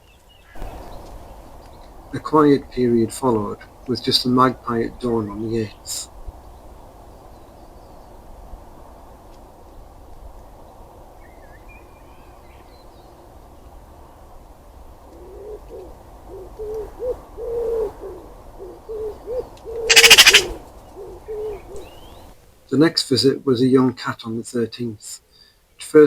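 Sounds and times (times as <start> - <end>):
pigeon cooing: 15.2 - 21.9
faint small-bird chirps: 19.9 - 20.5
loud harsh rattling burst: 19.9 - 20.5.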